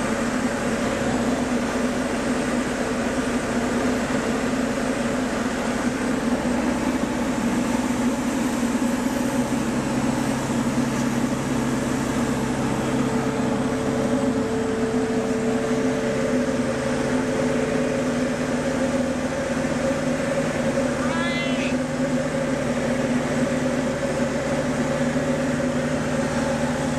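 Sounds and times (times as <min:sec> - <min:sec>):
light aircraft engine drone: 0:00.0 - 0:26.9
higher hum tone: 0:05.4 - 0:26.9.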